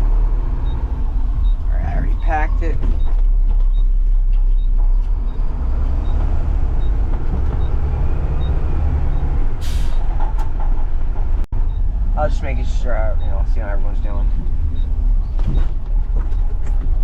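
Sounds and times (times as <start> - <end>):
diesel engine rumbling: 0.0 - 17.0
air brake hiss: 9.6 - 10.0.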